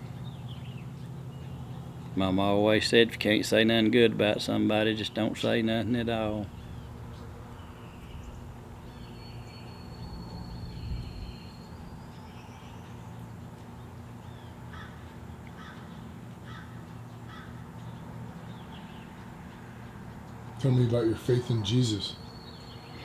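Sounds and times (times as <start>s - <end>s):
steady low hum: 0.0s - 23.0s
bird calling harshly: 15.6s - 17.6s.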